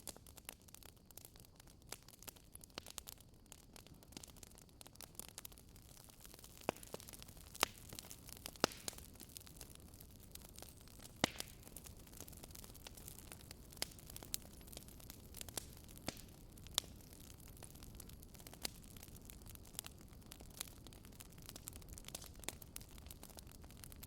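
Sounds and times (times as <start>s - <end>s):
faint steady hiss: 0.0s - 24.0s
wood fire crackling and popping: 0.0s - 24.0s.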